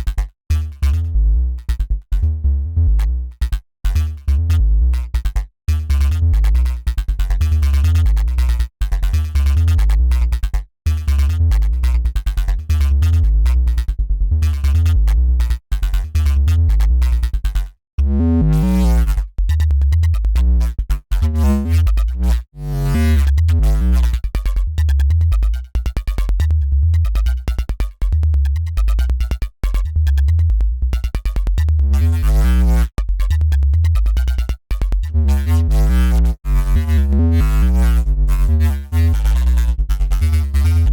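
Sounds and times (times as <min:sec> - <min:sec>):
buzzy synth bass riff: 0:00.0 - 0:05.1, 0:10.9 - 0:17.3, 0:18.0 - 0:40.9.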